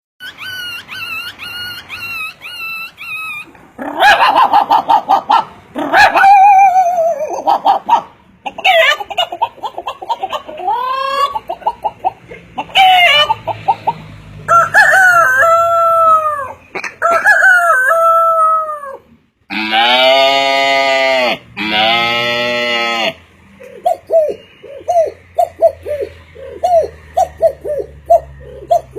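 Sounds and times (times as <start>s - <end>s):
chickens clucking: 0.3s - 19.2s, 23.5s - 28.9s
rooster crowing: 14.4s - 23.2s
long low animal call: 18.0s - 28.9s.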